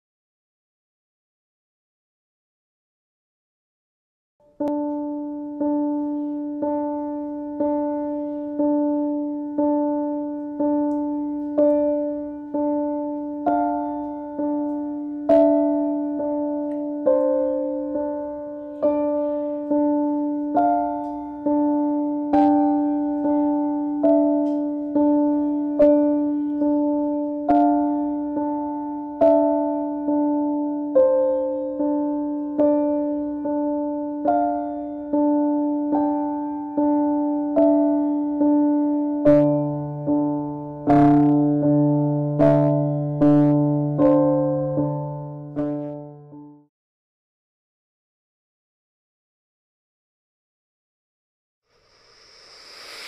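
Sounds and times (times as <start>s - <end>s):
slow piano chords: 4.4s - 46.7s.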